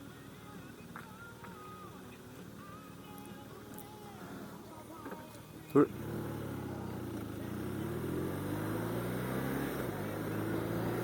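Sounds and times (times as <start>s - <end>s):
motorcycle engine accelerating: 5.8s - 11.0s.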